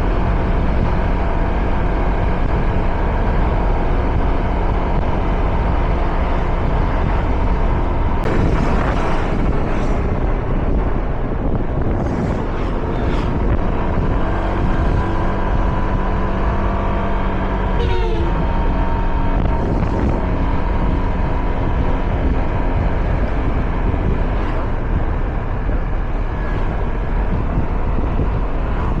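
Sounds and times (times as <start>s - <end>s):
wind rush on microphone: 0.0s - 29.0s
motorcycle engine running: 7.5s - 29.0s.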